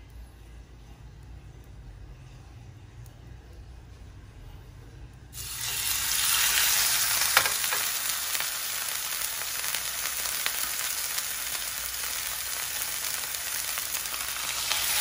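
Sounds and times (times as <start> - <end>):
steak sizzling on grill pan: 5.4 - 15.0.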